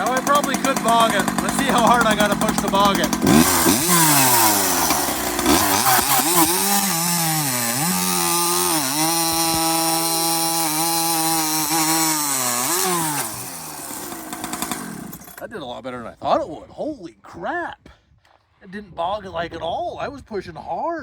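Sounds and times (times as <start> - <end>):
chainsaw cutting wood: 0.0 - 15.4.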